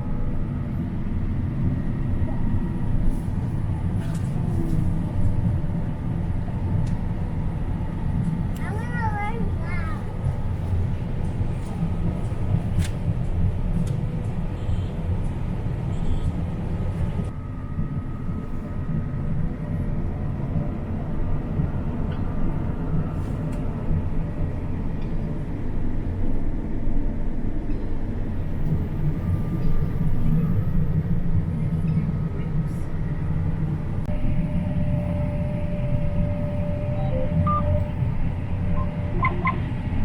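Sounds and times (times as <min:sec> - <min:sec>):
combine harvester rumbling: 0:28.5 - 0:40.0
faint steady whine: 0:34.0 - 0:40.0.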